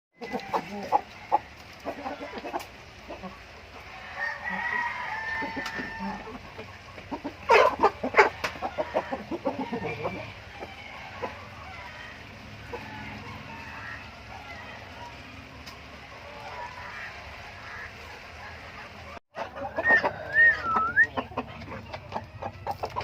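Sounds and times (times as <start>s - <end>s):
rooster crowing: 0.2s - 2.6s, 3.8s - 6.4s, 8.2s - 15.4s, 19.7s - 21.0s
rooster clucking and squawking: 0.2s - 23.0s.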